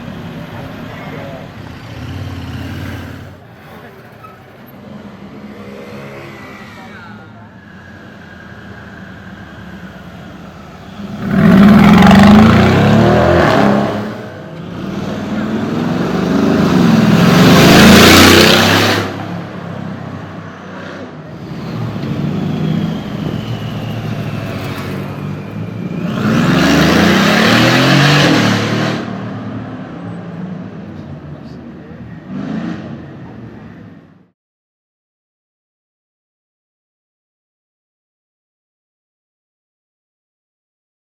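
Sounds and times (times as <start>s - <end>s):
car engine revving and accelerating: 10.9s - 30.9s, 32.2s - 33.2s.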